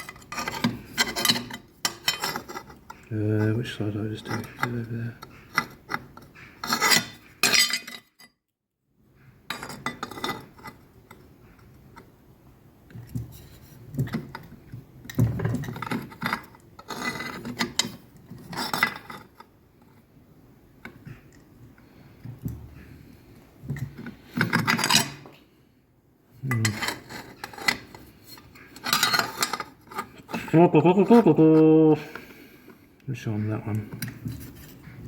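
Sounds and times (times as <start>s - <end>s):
metal tooling clinking: 0.0s - 3.0s, 26.4s - 30.5s.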